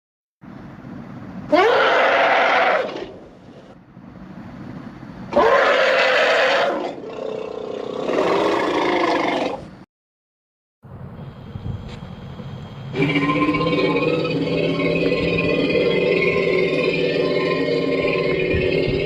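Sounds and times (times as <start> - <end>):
animal-like creature calls: 1.5 - 3.2, 5.4 - 9.7, 12.9 - 19.0
low rumble: 10.8 - 19.0.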